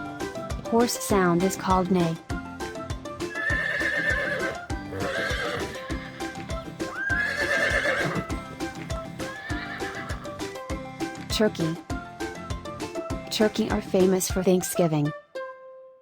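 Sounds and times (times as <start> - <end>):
background music with steady beat: 0.0 - 15.7
horse neighing: 3.3 - 10.4.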